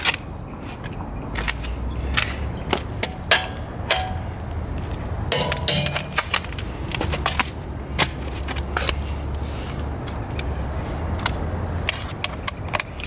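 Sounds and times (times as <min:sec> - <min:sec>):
metal parts clicking and clinking: 0:03.0 - 0:04.5, 0:05.3 - 0:06.7.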